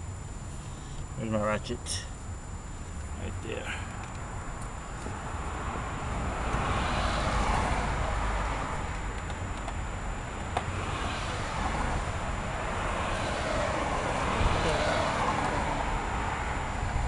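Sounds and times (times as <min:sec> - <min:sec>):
vehicle approaching: 0:05.2 - 0:17.0
car passing by: 0:06.4 - 0:08.8, 0:10.8 - 0:16.6.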